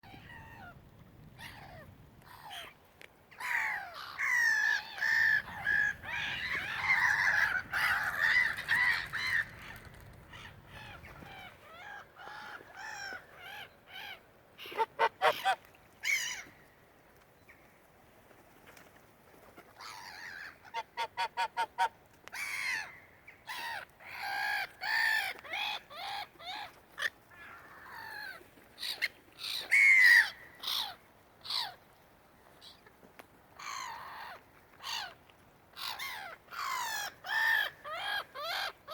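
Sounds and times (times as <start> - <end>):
seagulls calling: 3.4 - 16.5.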